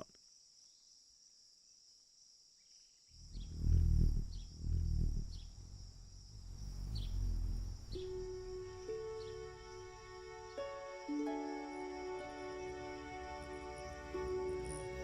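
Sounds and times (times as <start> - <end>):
high-pitched insect chorus: 0.0 - 15.0
hummingbird wing hum: 3.2 - 15.0.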